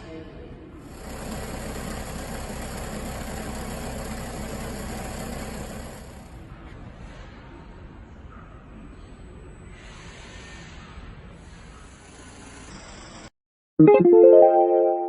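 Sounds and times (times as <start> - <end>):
auger conveyor motor running: 1.0 - 6.2.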